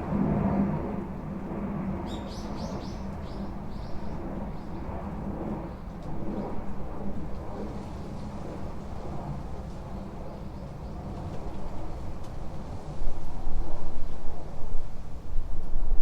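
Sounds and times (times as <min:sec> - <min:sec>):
wind: 0:00.0 - 0:16.0
rain on a tin roof: 0:07.8 - 0:13.4.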